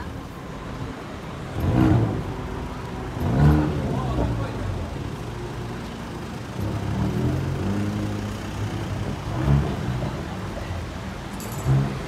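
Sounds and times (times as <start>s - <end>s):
car engine revving: 1.4s - 10.5s.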